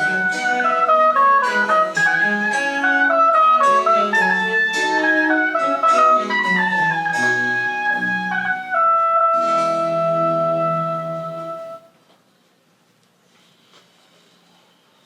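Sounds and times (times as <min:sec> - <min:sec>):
baroque chamber music: 0:00.0 - 0:11.9.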